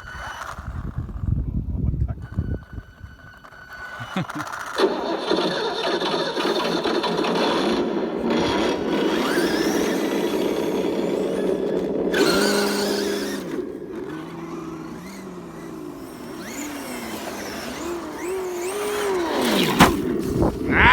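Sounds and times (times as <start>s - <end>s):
rc truck electric motor whine: 0.0s - 20.9s
tyres crunching on gravel: 2.2s - 20.9s.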